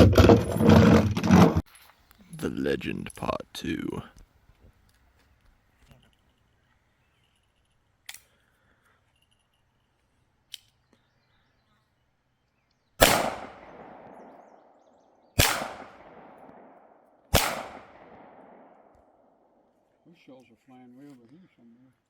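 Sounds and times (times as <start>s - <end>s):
pistol shots with ringing tail: 13.0s - 19.3s.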